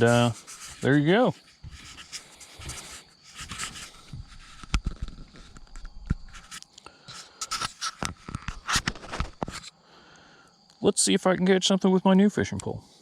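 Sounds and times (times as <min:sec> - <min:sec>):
scraping and rubbing: 0:00.0 - 0:09.7.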